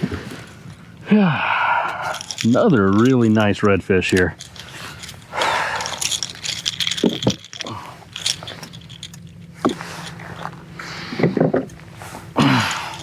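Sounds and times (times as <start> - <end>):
fish and gear scraping and rattling: 2.0 - 13.0
short grunts: 12.2 - 13.0.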